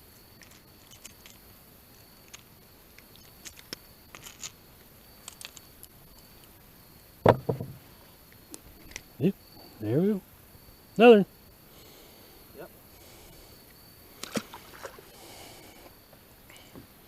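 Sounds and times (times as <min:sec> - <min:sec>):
loud thump: 0:07.2 - 0:07.8.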